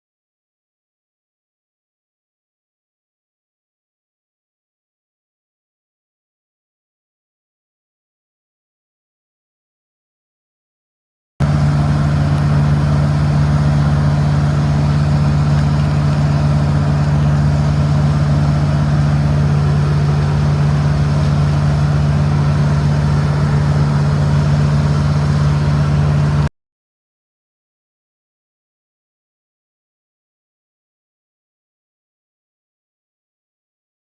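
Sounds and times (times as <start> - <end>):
engine humming steadily: 11.4 - 26.5.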